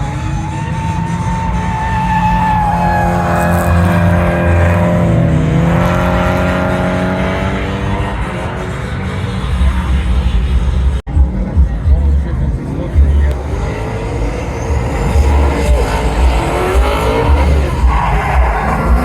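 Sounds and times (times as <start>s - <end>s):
car engine revving high: 0.0s - 19.0s
background music: 11.1s - 19.0s.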